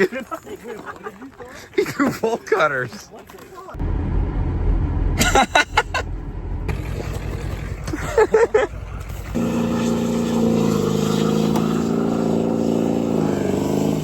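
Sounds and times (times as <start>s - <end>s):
pickup truck engine running: 3.8s - 13.9s.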